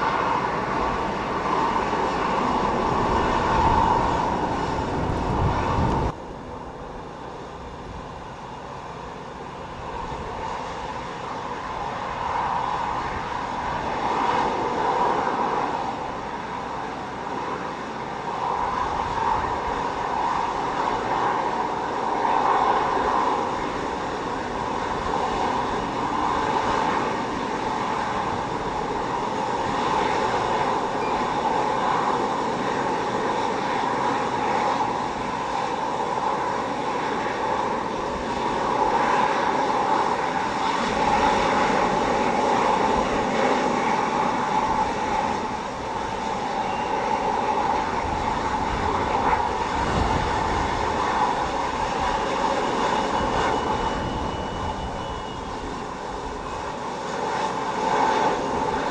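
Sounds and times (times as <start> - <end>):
wind buffeting microphone: 0.0 - 7.0, 18.3 - 56.9
aircraft engines whining: 0.0 - 58.9.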